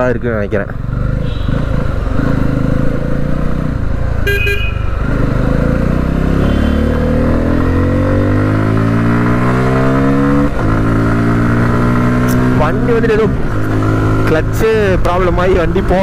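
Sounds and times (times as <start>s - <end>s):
motorcycle engine accelerating: 0.6s - 16.0s
vehicle horn toot: 1.2s - 1.7s, 4.2s - 4.9s.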